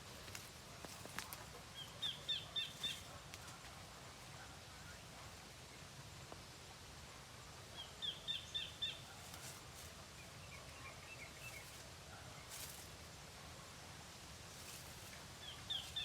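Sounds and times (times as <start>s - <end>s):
outdoor background noise: 0.0s - 16.0s
small bird chirping: 14.6s - 16.0s.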